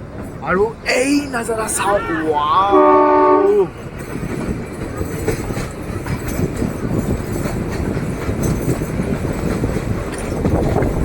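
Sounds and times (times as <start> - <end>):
train wheels clattering on rails: 3.5 - 11.0.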